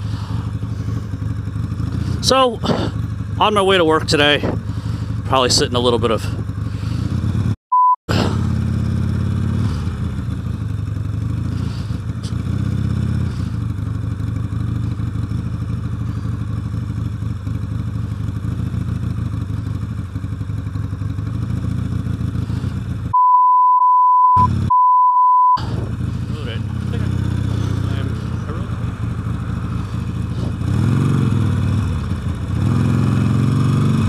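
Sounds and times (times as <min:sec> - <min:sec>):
motorcycle engine running: 0:00.0 - 0:23.2, 0:24.4 - 0:24.7, 0:25.6 - 0:34.0
censor bleeps: 0:23.1 - 0:25.6.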